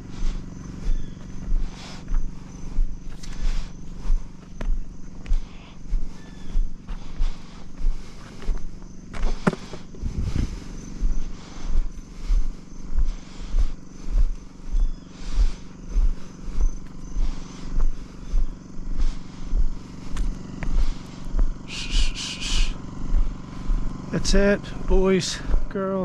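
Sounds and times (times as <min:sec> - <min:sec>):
engine running with throb: 0:00.0 - 0:26.0
high chirps: 0:20.7 - 0:24.9.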